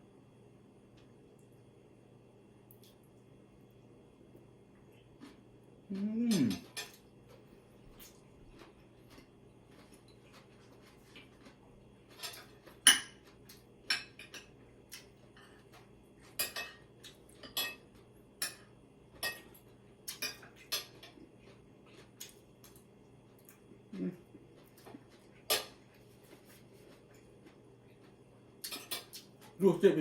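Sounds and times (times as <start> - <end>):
cutlery clinking on plates: 12.1 - 13.3, 16.3 - 21.2, 25.5 - 25.8, 28.7 - 29.2.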